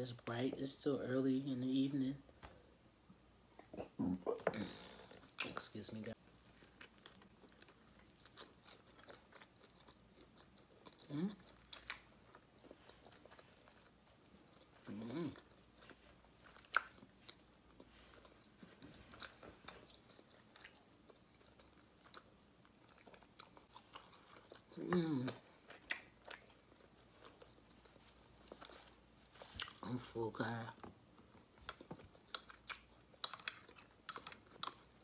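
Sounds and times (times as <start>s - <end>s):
chewing fried chicken: 6.2s - 35.0s
person humming: 24.8s - 25.4s.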